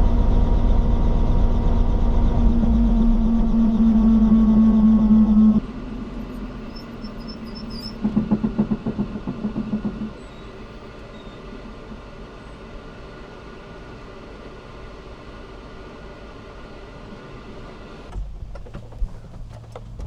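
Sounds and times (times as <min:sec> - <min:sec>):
pulsing throb: 0:00.0 - 0:10.1
steady mechanical hum: 0:00.0 - 0:20.0.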